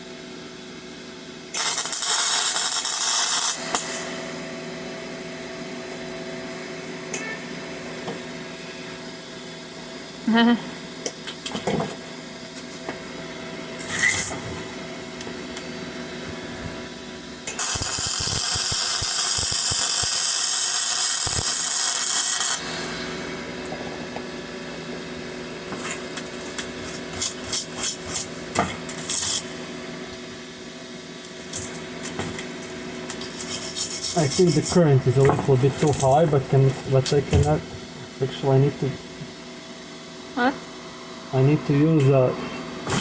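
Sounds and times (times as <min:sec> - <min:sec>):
steady hum: 0:01.4 - 0:43.0
welding arc crackling: 0:01.5 - 0:04.2, 0:13.8 - 0:15.7, 0:17.4 - 0:23.7, 0:25.8 - 0:29.6, 0:31.2 - 0:37.7
scraping strokes: 0:33.2 - 0:34.7.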